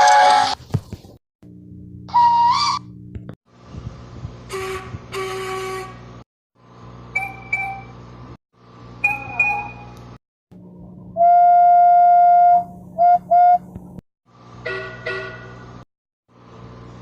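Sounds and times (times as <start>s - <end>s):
steady low hum: 1.4s - 2.1s
steam locomotive whistle toots: 4.5s - 6.0s, 7.1s - 7.9s, 11.2s - 13.7s.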